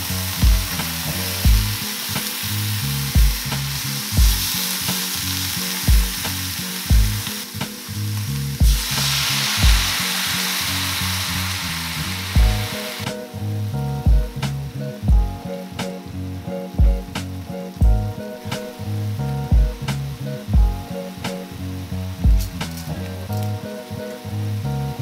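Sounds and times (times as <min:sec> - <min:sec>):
wooden utensils stirring in pan: 0:00.0 - 0:13.1
lobster sizzling in a pan: 0:00.0 - 0:13.7.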